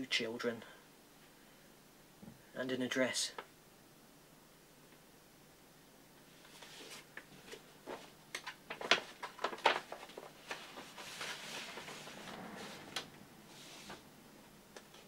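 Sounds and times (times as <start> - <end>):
soft rustle: 6.2 - 14.1.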